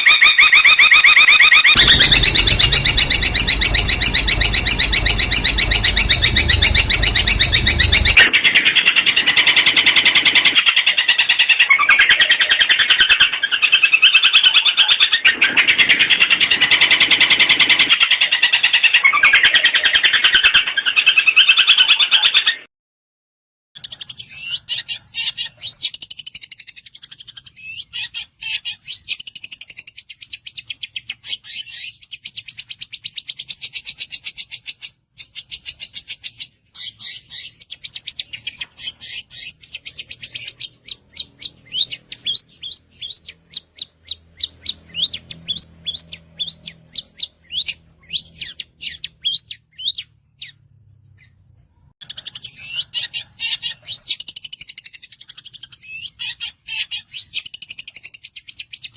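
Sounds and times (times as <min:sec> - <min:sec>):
bird singing rapid chattering trills: 0:01.7 - 0:08.2, 0:35.4 - 0:50.6.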